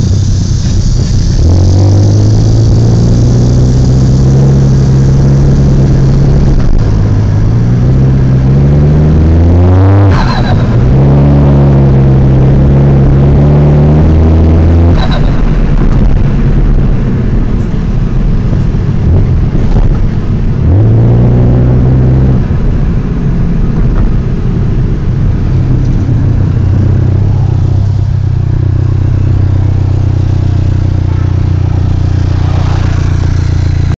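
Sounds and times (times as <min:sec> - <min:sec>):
car engine revving and idling: 0:00.0 - 0:34.0.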